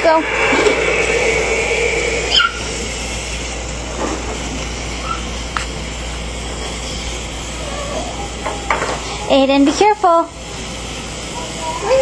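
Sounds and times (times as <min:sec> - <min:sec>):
steady hum: 0:00.0 - 0:06.5
dog whining: 0:02.3 - 0:02.7.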